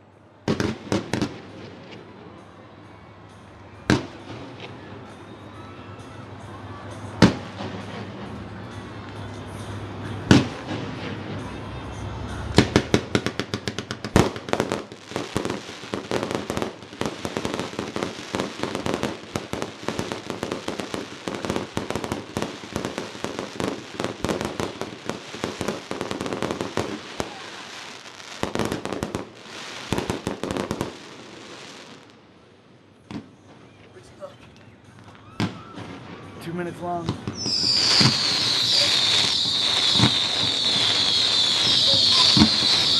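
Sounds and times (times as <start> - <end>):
fireworks booming: 0.4 - 2.2, 9.5 - 32.2, 35.4 - 42.9
fireworks crackling and popping: 0.4 - 2.5, 3.6 - 42.9.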